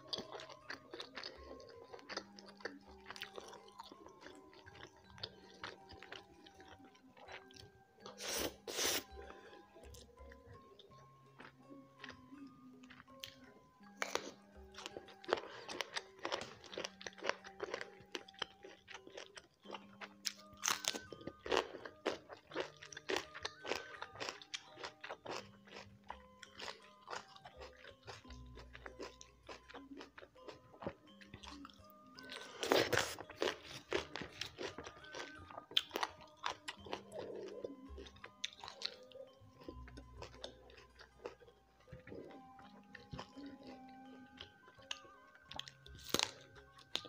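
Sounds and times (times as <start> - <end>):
soft background music: 0.0 - 47.0
crunching raw vegetables: 14.0 - 43.8, 44.4 - 47.0.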